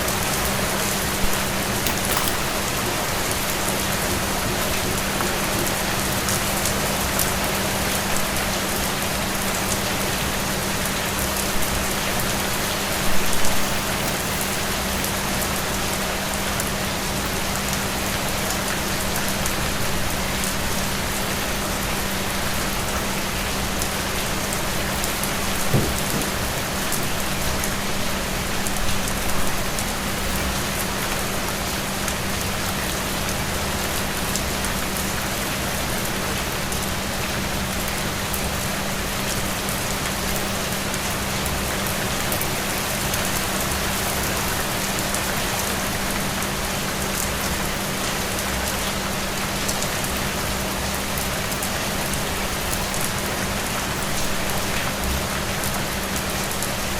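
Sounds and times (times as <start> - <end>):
steady rain falling: 14.6 - 56.9.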